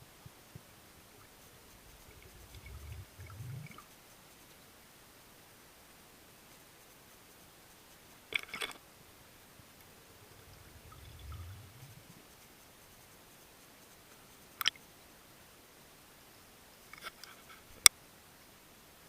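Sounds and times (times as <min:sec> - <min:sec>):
faint underwater hiss: 0:00.0 - 0:19.0
soft low rumble: 0:01.2 - 0:04.1, 0:09.5 - 0:12.8.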